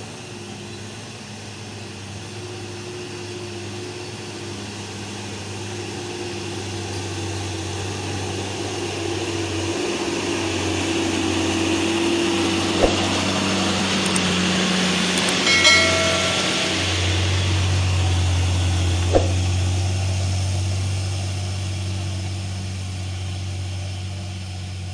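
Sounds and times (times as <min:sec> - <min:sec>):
brief high-pitched tone: 0:15.4 - 0:17.3.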